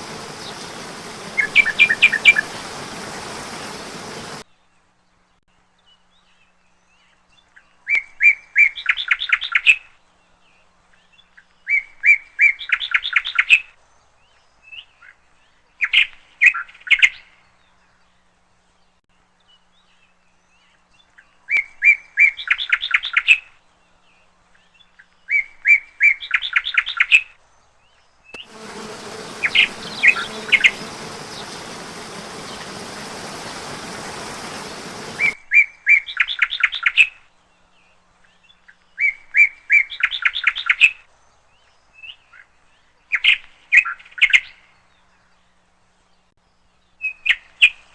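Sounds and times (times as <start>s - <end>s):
songbird singing: 0.0s - 4.4s, 28.4s - 35.4s
steady rushing noise: 0.0s - 4.4s, 28.4s - 35.4s.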